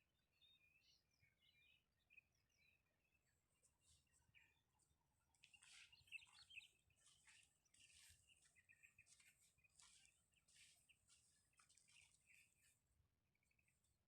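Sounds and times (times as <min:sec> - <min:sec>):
faint birdsong chirps: 0:00.0 - 0:14.0.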